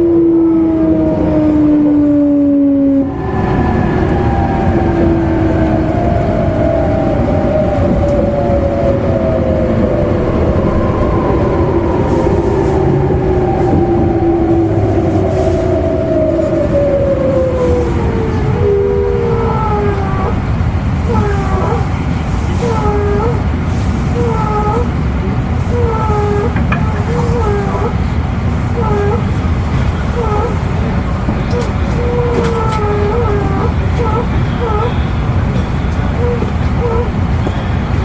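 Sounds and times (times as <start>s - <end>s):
train motor whine: 0.0s - 38.0s
wheels rumbling on rails: 0.0s - 38.0s.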